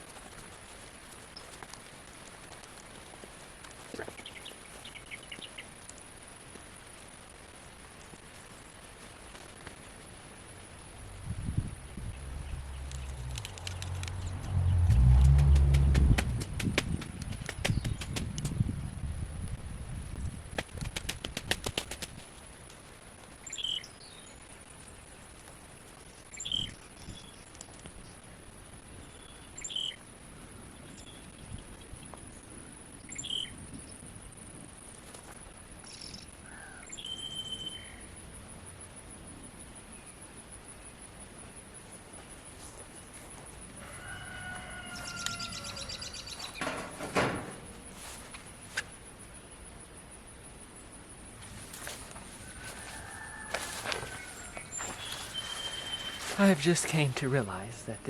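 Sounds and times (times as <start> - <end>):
steady high whine: 3.7 - 16.6
bird chirping: 11.8 - 16.4, 45.0 - 46.6, 53.9 - 56.8
sharp clicks: 12.6 - 18.6
rooster crowing: 43.8 - 47.0, 51.6 - 56.4
loud rustling thump: 46.4 - 48.5.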